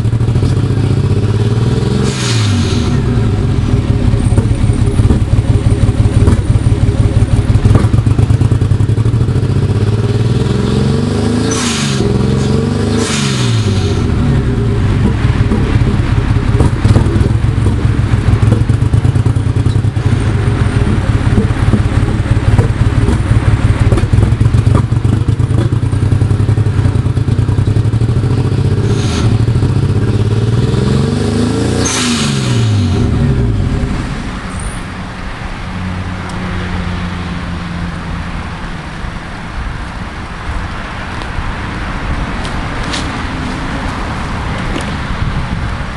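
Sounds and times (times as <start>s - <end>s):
car engine misfiring: 0.0s - 10.0s, 11.2s - 36.3s.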